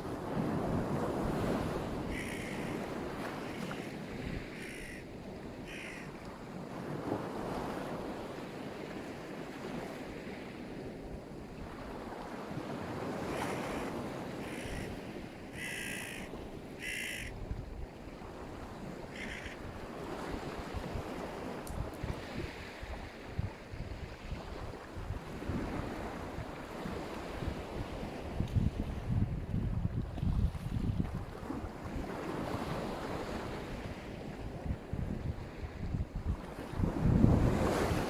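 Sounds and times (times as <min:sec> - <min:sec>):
wind on microphone: 0:00.0 - 0:38.0
bird harsh calls: 0:02.1 - 0:02.6, 0:05.7 - 0:06.1, 0:14.4 - 0:14.9, 0:15.6 - 0:17.3, 0:19.2 - 0:19.6
surf washing onto shore: 0:18.2 - 0:38.0.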